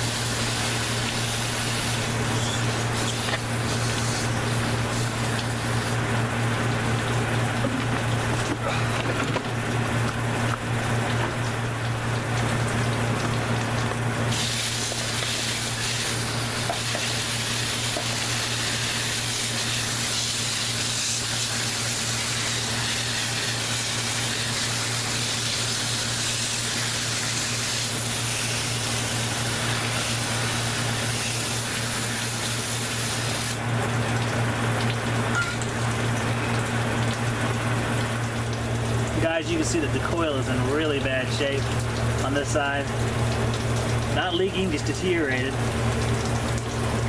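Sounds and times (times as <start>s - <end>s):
low motor hum: 0.0s - 20.2s, 33.5s - 47.0s
water spraying onto coil: 0.0s - 35.0s, 35.7s - 47.0s.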